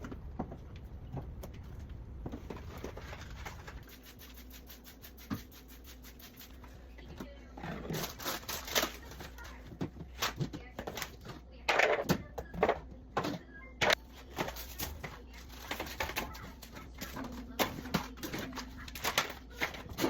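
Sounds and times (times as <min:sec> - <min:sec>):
food containers scraping and knocking: 0:00.0 - 0:03.9.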